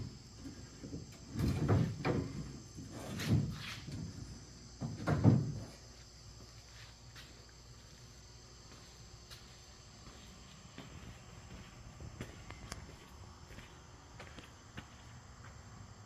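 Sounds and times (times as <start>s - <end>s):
metal frame creaking and rattling: 0.0s - 5.8s.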